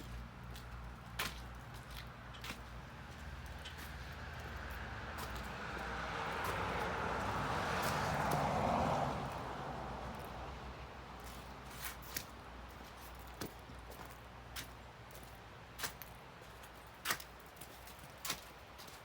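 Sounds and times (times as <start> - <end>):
vehicle passing by: 2.8 - 11.9.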